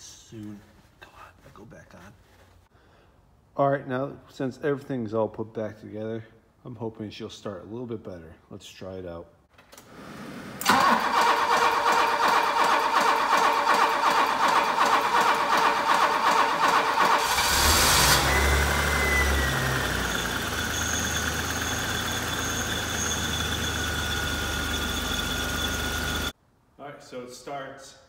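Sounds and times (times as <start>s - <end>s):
car engine starting and idling: 9.6s - 26.3s.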